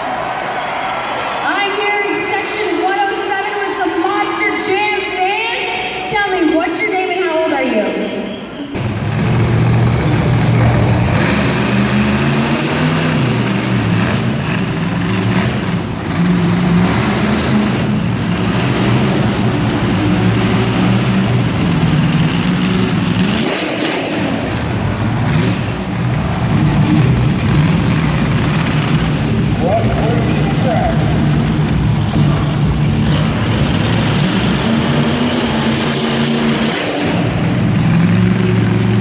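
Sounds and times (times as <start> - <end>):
monster truck engine revving: 8.8 - 39.0.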